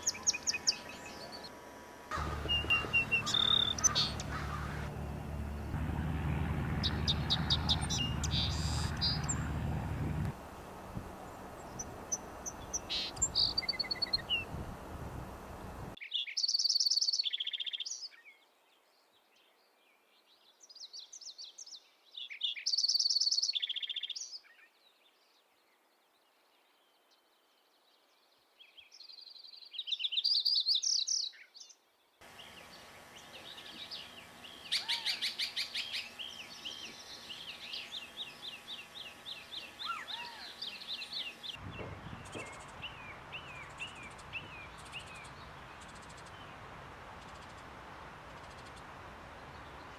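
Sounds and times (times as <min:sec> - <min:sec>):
bird repeated chirps: 0:02.1 - 0:05.2, 0:06.8 - 0:09.6
songbird singing high phrase: 0:02.1 - 0:05.7, 0:06.8 - 0:09.6
bird chirping with rapid trill: 0:02.1 - 0:10.2.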